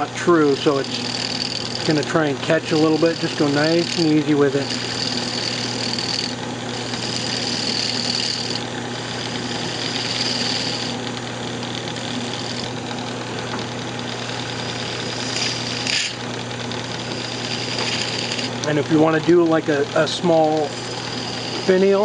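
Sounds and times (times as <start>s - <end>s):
lathe motor hum: 0.0s - 22.0s
gouge cutting hiss: 0.4s - 11.0s, 14.6s - 16.2s, 17.0s - 18.6s, 20.3s - 22.0s
sharp scrape: 15.1s - 16.2s, 17.2s - 18.5s.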